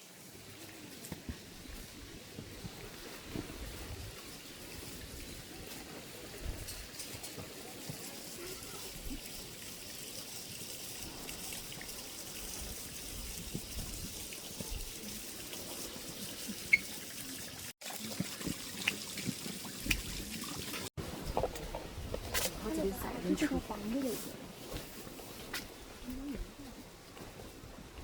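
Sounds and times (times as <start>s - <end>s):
water trickling: 7.7s - 20.9s.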